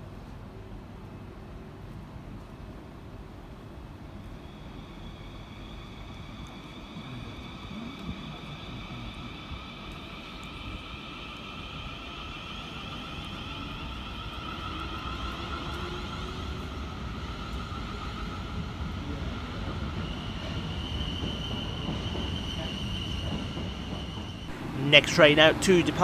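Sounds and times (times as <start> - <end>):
train traction motor whine: 24.5 - 26.0.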